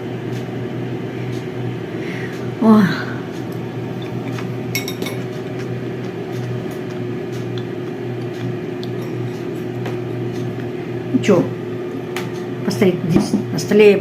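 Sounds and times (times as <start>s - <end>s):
steady low hum: 0.0s - 14.0s
dishes clinking: 4.0s - 5.3s.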